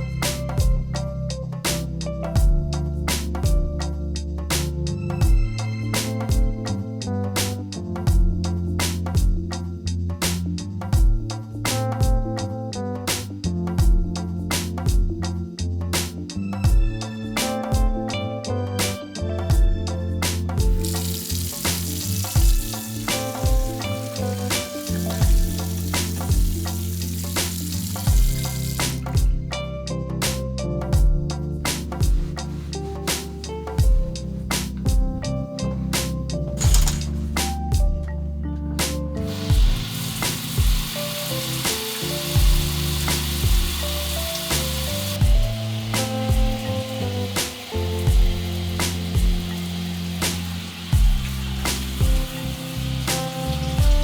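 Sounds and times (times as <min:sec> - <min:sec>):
background music with drum beat: 0:00.0 - 0:38.2, 0:38.8 - 0:54.0
food sizzling in a frying pan: 0:20.7 - 0:29.1, 0:39.3 - 0:53.8.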